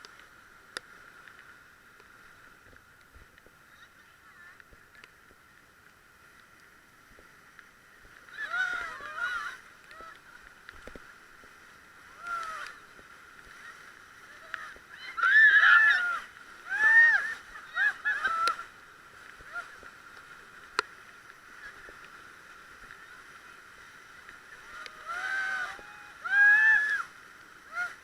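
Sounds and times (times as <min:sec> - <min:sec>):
light ticks: 0:00.0 - 0:03.6, 0:04.5 - 0:09.0, 0:09.7 - 0:11.6, 0:18.3 - 0:22.2
people yelling and whooping: 0:08.3 - 0:10.4, 0:12.1 - 0:12.8, 0:14.3 - 0:18.8, 0:24.5 - 0:28.0.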